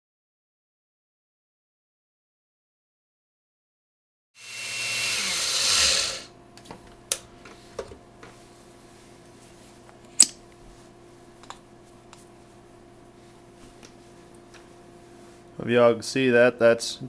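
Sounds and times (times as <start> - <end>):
blender grinding: 4.4 - 6.3.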